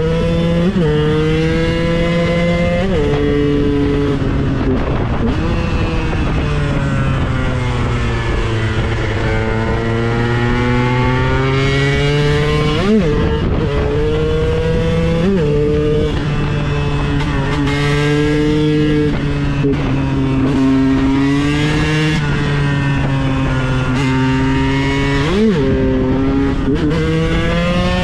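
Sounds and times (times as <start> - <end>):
two-stroke engine revving: 0.0 - 28.0.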